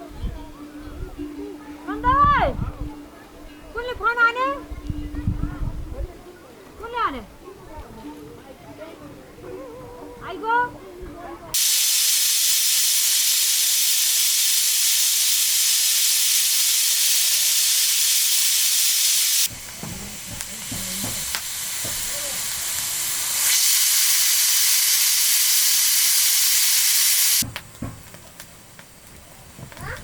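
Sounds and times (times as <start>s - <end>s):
faint voices: 0.0s - 11.6s
loud steady hiss: 11.6s - 29.8s.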